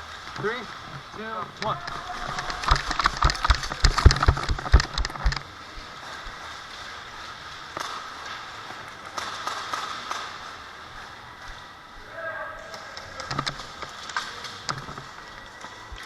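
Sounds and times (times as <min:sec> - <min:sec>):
sharp knocks and thumps: 0:01.6 - 0:05.5
faint clicks: 0:09.2 - 0:16.0.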